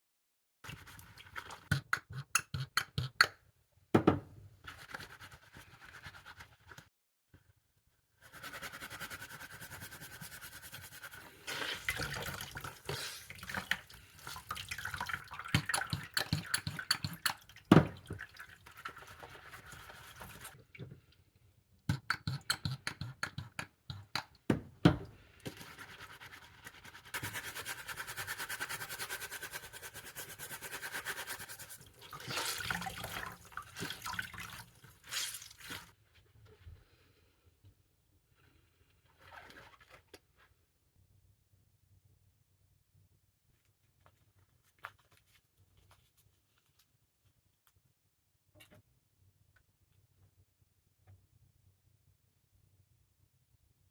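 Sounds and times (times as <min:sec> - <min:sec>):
knocks: 0:04.0 - 0:04.3
glove being scrubbed: 0:08.2 - 0:12.2, 0:18.3 - 0:20.6, 0:25.5 - 0:35.9
water running from tap: 0:32.0 - 0:35.8.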